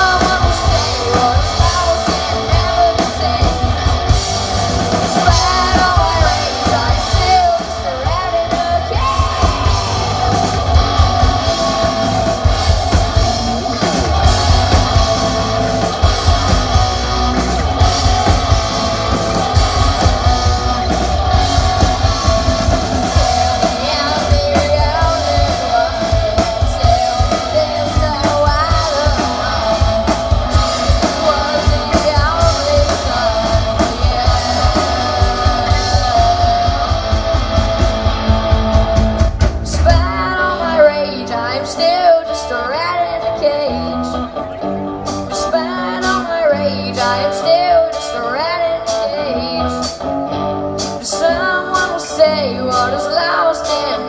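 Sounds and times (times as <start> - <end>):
person singing: 0.0 - 38.4, 39.6 - 50.1, 50.8 - 54.0
drum kit beat: 0.0 - 40.5
electric guitar: 0.0 - 54.0.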